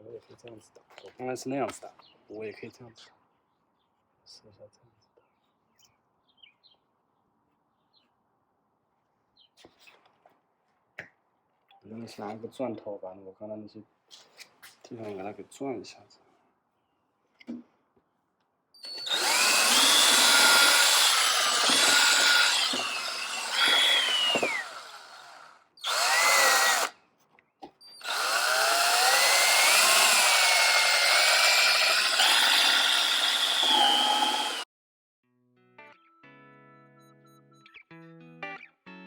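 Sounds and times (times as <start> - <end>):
power drill boring into wood: 18.8 - 26.9, 28.0 - 34.7.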